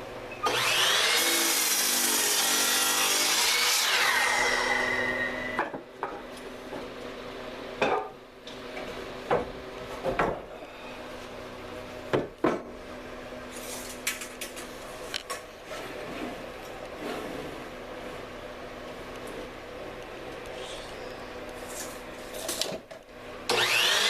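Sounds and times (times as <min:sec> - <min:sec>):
wooden boards and tools clattering: 0:09.3 - 0:10.5.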